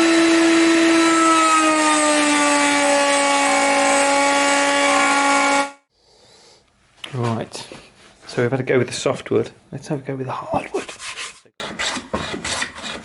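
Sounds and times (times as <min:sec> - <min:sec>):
router whining cutting wood: 0:00.0 - 0:05.8.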